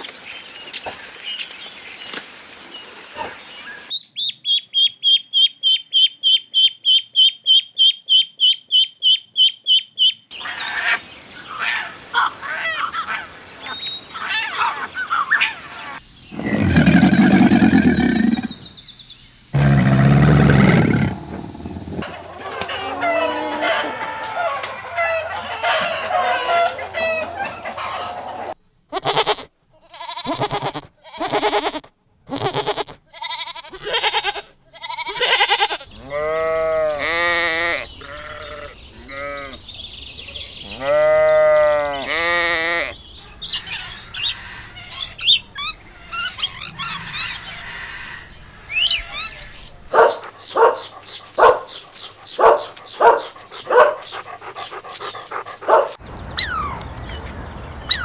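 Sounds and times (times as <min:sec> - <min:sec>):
sheep bleating: 0:16.4 - 0:18.6, 0:19.6 - 0:22.0, 0:28.9 - 0:39.6, 0:40.7 - 0:43.0
high chirping: 0:19.5 - 0:22.1, 0:48.9 - 0:58.0.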